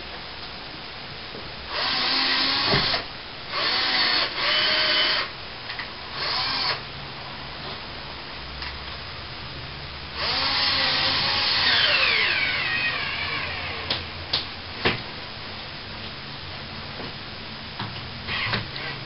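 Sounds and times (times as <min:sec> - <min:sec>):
cordless drill driving a screw: 0:01.7 - 0:05.3, 0:06.1 - 0:06.8, 0:10.2 - 0:13.9, 0:18.3 - 0:19.0.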